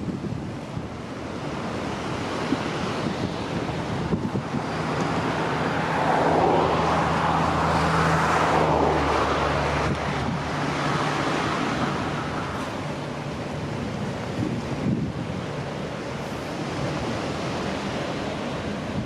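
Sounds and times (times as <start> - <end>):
vehicle passing by: 3.2 - 13.6.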